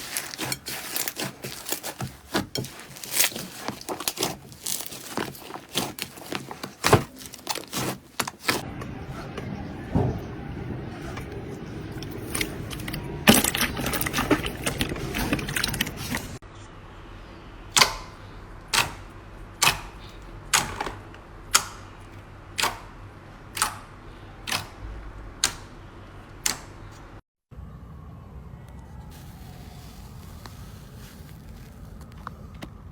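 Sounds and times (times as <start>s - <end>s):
slime crackling: 0.0s - 8.6s, 29.2s - 32.5s.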